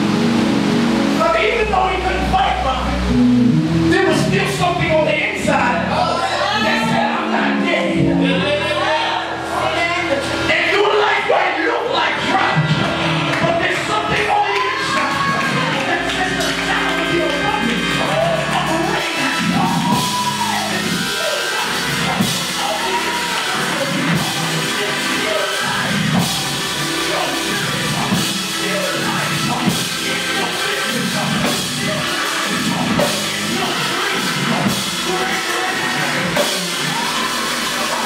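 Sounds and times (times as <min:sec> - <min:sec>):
live band music: 0:00.0 - 0:38.0
drum kit beat: 0:12.3 - 0:38.0.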